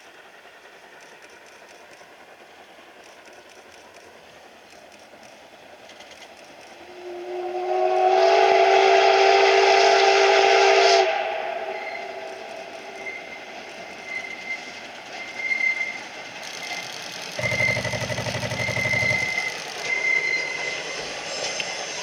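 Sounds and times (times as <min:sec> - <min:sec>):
steam locomotive whistle blast: 0:06.9 - 0:21.8.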